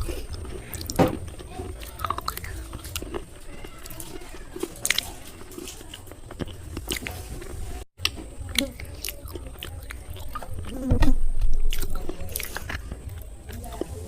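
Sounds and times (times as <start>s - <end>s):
slate pencils being chewed: 0.0s - 14.0s.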